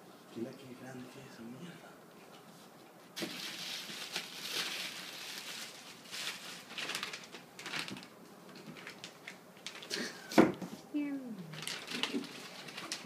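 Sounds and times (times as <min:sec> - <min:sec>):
packaging rustling: 0:03.2 - 0:10.3, 0:11.5 - 0:13.0.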